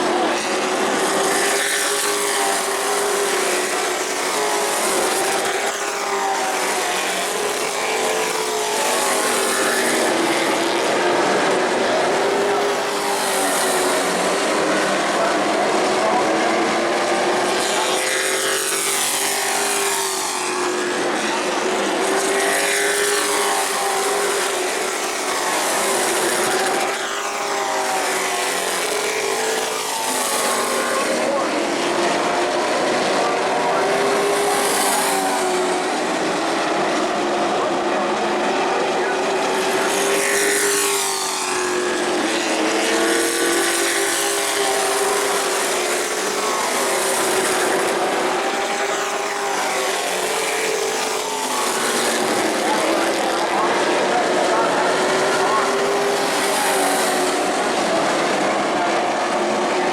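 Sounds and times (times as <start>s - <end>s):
race truck engines passing: 0.0s - 59.9s.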